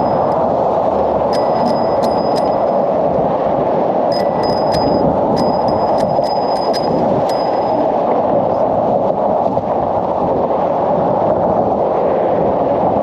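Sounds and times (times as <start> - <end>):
sharp metallic ticks: 0.0 - 0.5, 1.3 - 2.8, 4.1 - 7.8
wind buffeting microphone: 0.0 - 13.0.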